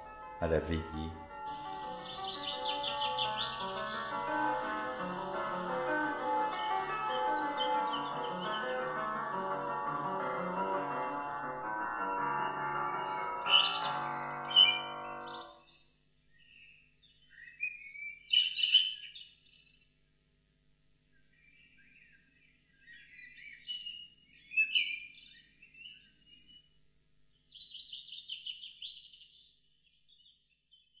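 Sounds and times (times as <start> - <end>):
bird chirping phrases: 0.4 - 6.0, 6.8 - 8.9, 13.0 - 20.0, 21.2 - 26.8, 27.4 - 31.0
fast bird trill: 1.6 - 4.7, 13.0 - 15.6.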